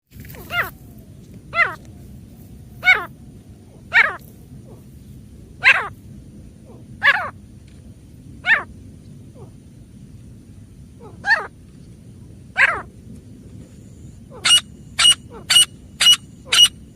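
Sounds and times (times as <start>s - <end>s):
francolin calling: 0.3s - 0.9s, 2.8s - 4.9s, 5.6s - 6.0s, 13.9s - 16.9s.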